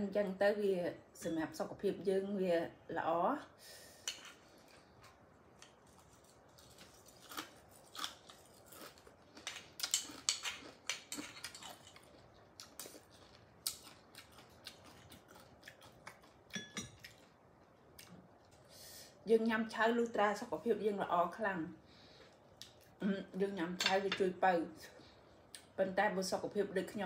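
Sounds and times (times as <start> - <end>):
person chewing wet food: 4.5 - 18.7.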